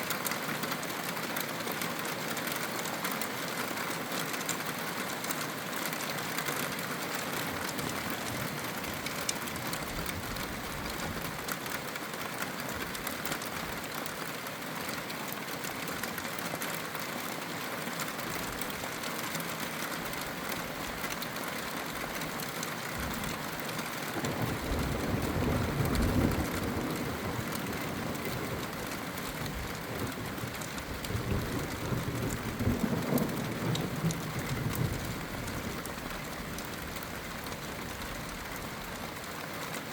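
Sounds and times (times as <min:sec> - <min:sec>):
steady rain: 0:00.0 - 0:39.9
thunder rumbling: 0:24.2 - 0:38.4.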